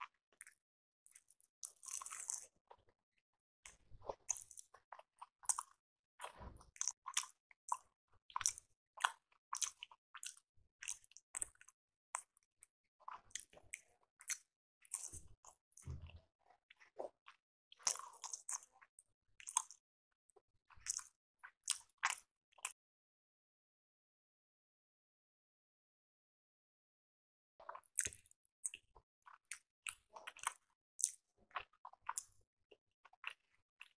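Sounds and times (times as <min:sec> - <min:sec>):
person chewing and biting food: 0:00.4 - 0:02.6, 0:03.7 - 0:05.8, 0:06.7 - 0:12.4, 0:13.1 - 0:15.6, 0:16.8 - 0:18.8, 0:19.4 - 0:19.8, 0:20.8 - 0:22.8, 0:27.6 - 0:32.4.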